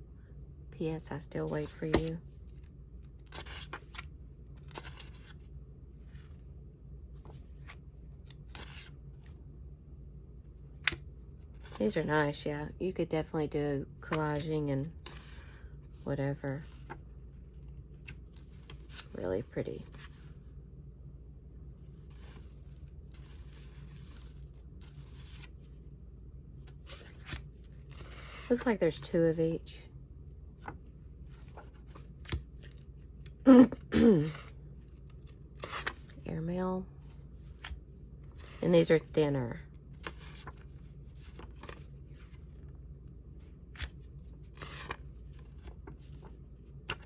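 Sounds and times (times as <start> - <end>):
low steady hum: 0.0 - 47.0
paper rustling: 30.6 - 32.9, 34.3 - 36.2, 43.7 - 47.0.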